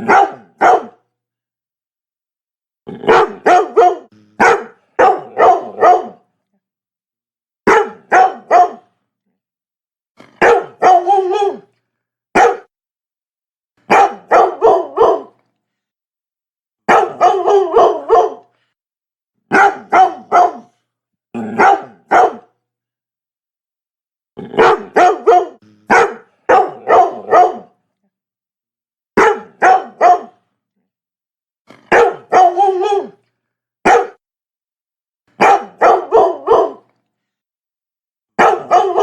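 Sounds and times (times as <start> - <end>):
dog barking: 0.0 - 1.0, 3.0 - 6.2, 7.6 - 8.9, 10.4 - 11.7, 12.3 - 12.7, 13.9 - 15.4, 16.9 - 18.6, 19.5 - 20.8, 21.4 - 22.6, 24.5 - 27.8, 29.2 - 30.4, 31.9 - 33.2, 33.8 - 34.2, 35.4 - 36.9, 38.4 - 39.0.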